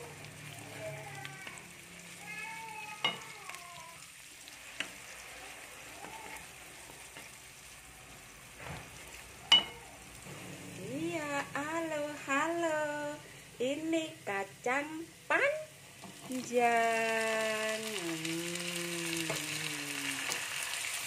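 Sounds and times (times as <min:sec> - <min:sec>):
faint sizzle of frying in a wok: 0:00.0 - 0:21.0.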